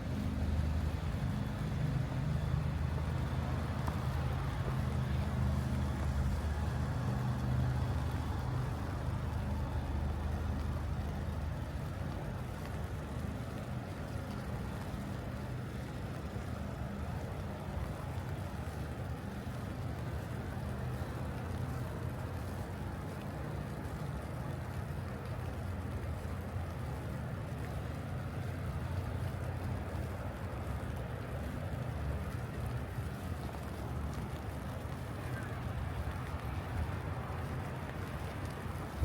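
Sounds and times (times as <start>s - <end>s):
vehicle engine rumbling: 0.0s - 15.1s.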